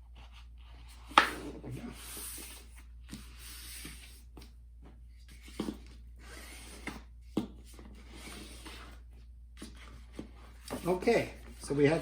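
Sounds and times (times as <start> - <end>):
poster board rustling and creasing: 9.6 - 12.0.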